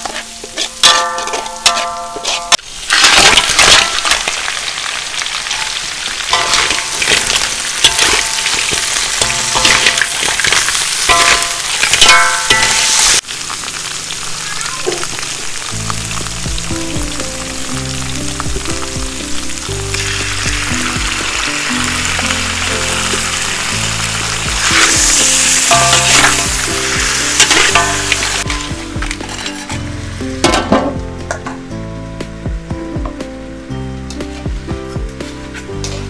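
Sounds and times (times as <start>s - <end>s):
utensil scraping a pan: 0.0s - 4.4s, 24.6s - 30.8s
food sizzling in a pan: 0.0s - 32.4s
background music: 15.7s - 36.0s.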